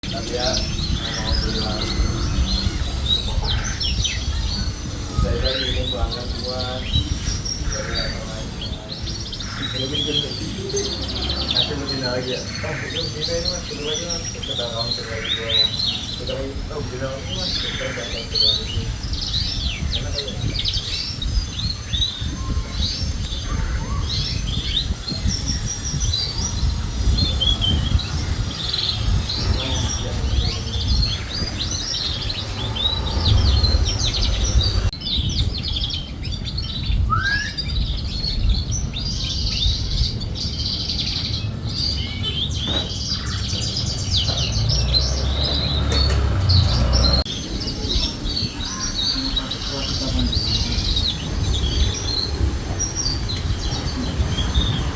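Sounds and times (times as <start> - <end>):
canary chirps and trills: 0.0 - 54.9
low rumble: 30.8 - 35.0.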